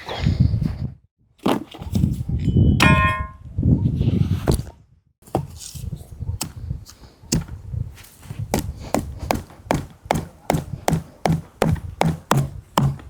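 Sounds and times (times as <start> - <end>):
metal object clanging: 2.8 - 3.4.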